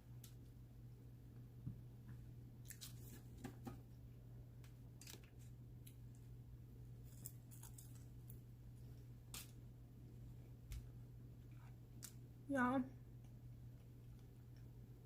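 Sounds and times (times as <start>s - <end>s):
chewing and crunching: 7.0s - 8.4s.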